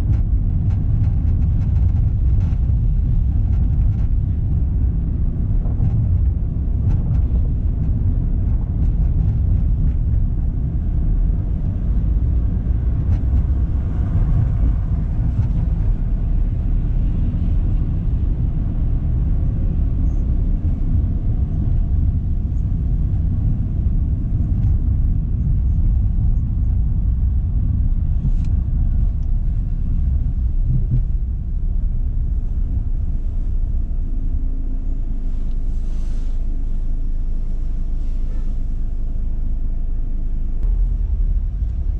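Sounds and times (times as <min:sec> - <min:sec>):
car engine and tyre noise: 0:00.0 - 0:41.9.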